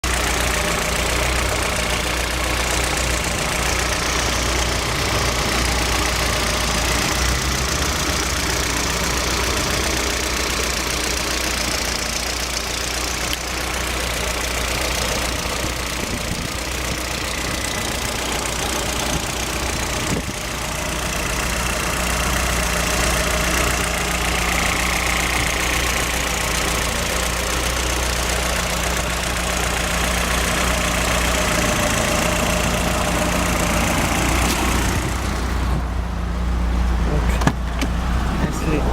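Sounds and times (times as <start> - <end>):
car engine idling with knock: 0.0 - 38.9.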